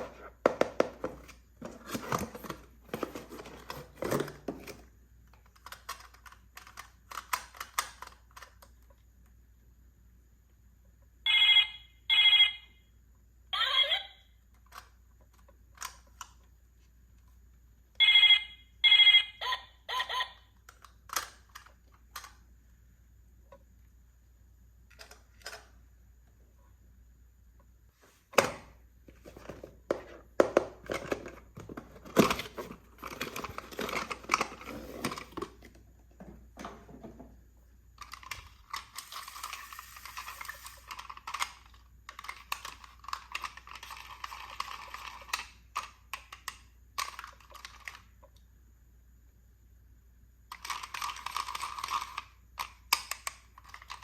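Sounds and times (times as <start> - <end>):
small plastic clicks: 5.3 - 9.0, 20.6 - 22.4, 38.0 - 48.4, 50.5 - 54.0.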